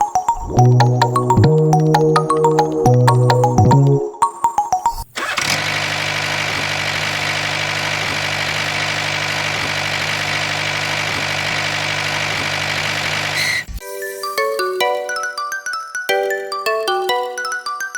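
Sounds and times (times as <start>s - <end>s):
small tractor engine idling: 5.2s - 13.4s.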